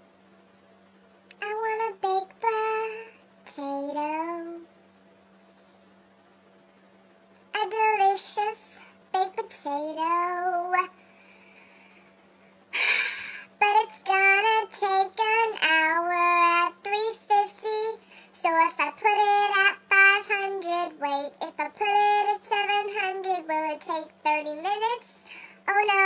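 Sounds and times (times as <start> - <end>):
faint hum: 0.0 - 26.0
high-pitched voice singing: 1.3 - 4.6, 7.6 - 10.9, 13.6 - 26.0
loud breathy burst: 11.0 - 13.6, 18.0 - 18.4, 25.2 - 25.6.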